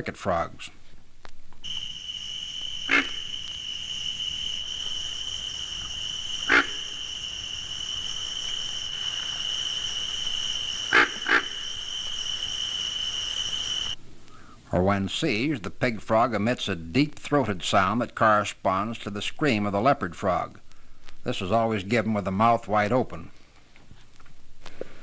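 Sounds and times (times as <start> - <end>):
high-pitched frog chorus: 1.6 - 14.0
frog grunts: 2.8 - 3.3, 6.5 - 6.9, 10.9 - 11.6.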